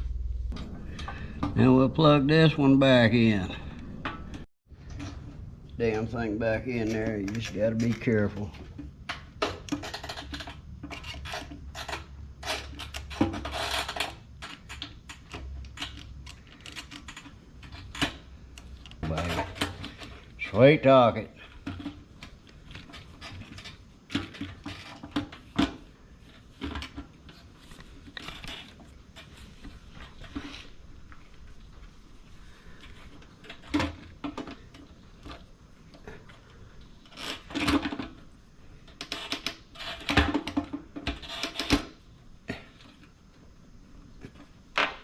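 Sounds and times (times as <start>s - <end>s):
hard parts clicking and knocking: 32.7s - 43.1s.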